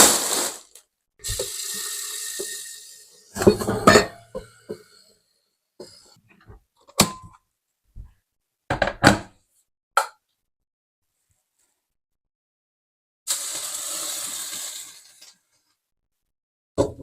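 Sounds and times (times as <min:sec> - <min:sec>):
objects knocking and clattering: 0:03.4 - 0:04.8, 0:08.7 - 0:09.3.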